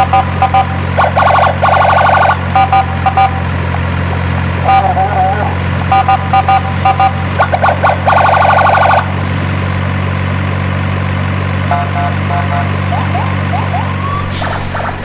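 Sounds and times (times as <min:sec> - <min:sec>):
short beeping tones: 0:00.0 - 0:01.0, 0:01.9 - 0:03.6, 0:04.6 - 0:07.4, 0:11.7 - 0:15.0
truck engine idling: 0:00.0 - 0:15.0.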